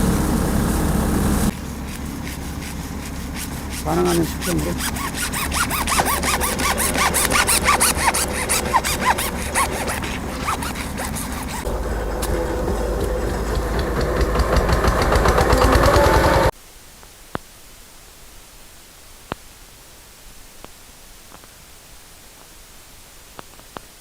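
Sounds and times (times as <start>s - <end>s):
drilling rig motor: 0.0s - 16.5s
rhythmic squeal: 1.5s - 16.5s.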